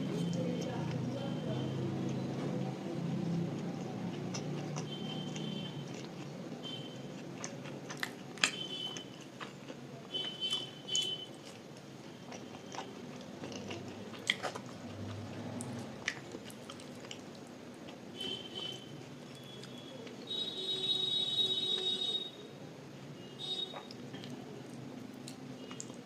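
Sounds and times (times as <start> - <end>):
person chewing and biting: 3.3 - 6.3, 7.0 - 18.1.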